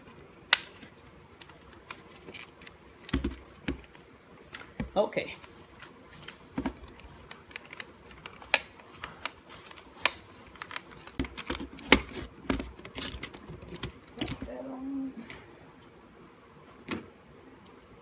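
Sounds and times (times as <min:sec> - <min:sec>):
plastic and metal parts clicking: 0:06.6 - 0:14.5.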